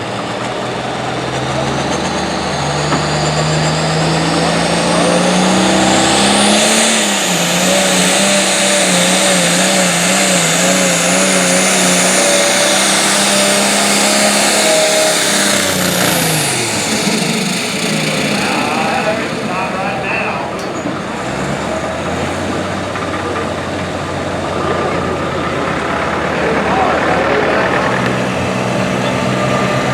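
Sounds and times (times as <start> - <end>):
tractor engine revving under load: 0.0 - 29.9.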